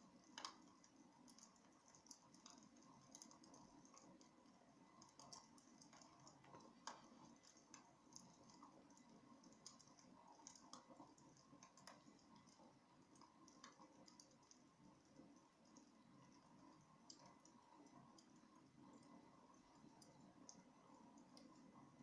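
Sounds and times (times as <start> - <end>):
low steady hiss: 0.0 - 22.0
wood fire crackling and popping: 0.1 - 22.0.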